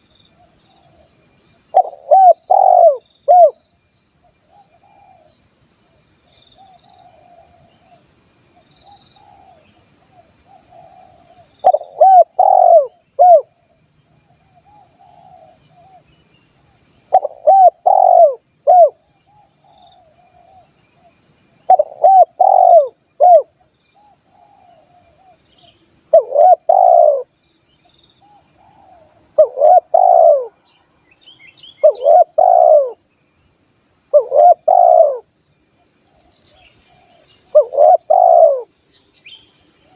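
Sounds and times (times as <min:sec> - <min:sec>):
dove cooing: 0:01.7 - 0:03.6, 0:04.5 - 0:05.2, 0:08.8 - 0:09.6, 0:10.6 - 0:13.6, 0:14.6 - 0:16.0, 0:17.1 - 0:20.6, 0:21.7 - 0:25.4, 0:26.1 - 0:27.3, 0:28.2 - 0:30.6, 0:31.8 - 0:33.0, 0:34.1 - 0:35.3, 0:36.1 - 0:38.7.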